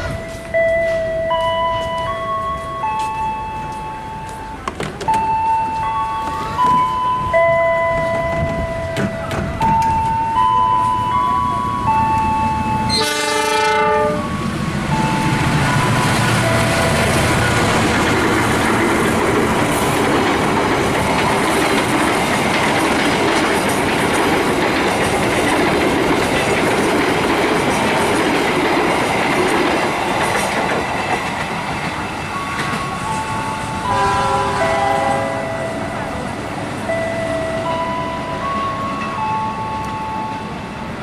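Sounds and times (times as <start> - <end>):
pitched tones: 0.0 - 20.9, 32.1 - 40.6
train wheels rushing on rail: 0.0 - 41.0.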